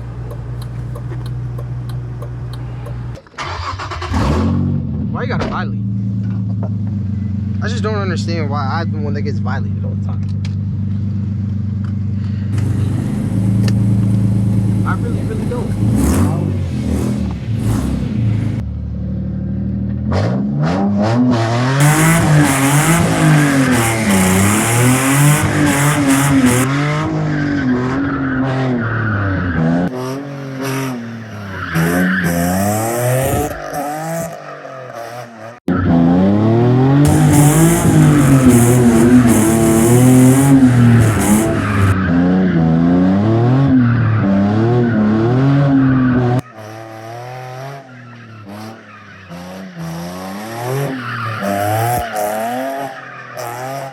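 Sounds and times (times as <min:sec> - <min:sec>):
car engine revving: 0:00.0 - 0:05.2, 0:12.5 - 0:18.6, 0:19.2 - 0:53.9
tires squealing: 0:12.5 - 0:18.6, 0:21.7 - 0:53.9.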